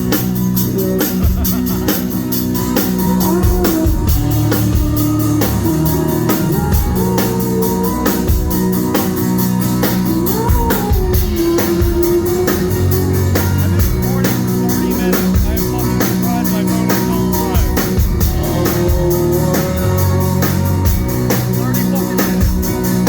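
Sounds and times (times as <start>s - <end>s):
drum kit cymbal beat: 0.0s - 23.0s
live rock band playing: 0.0s - 23.0s.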